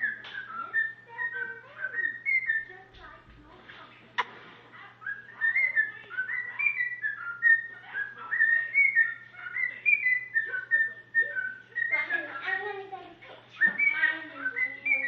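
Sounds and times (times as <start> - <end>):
cockatiel whistling a tune: 0.0 - 2.7, 5.0 - 12.6, 13.6 - 15.0.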